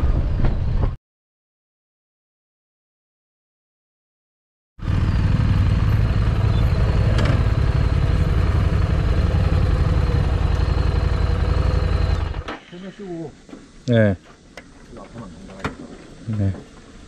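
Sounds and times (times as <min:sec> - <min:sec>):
motorcycle engine running: 0:04.8 - 0:12.5.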